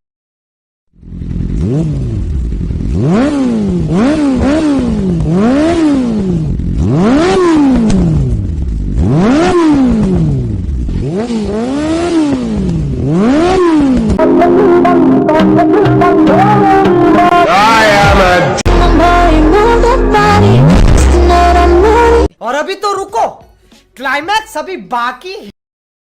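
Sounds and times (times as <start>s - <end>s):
motorcycle engine revving: 1.0s - 14.6s, 15.8s - 22.3s.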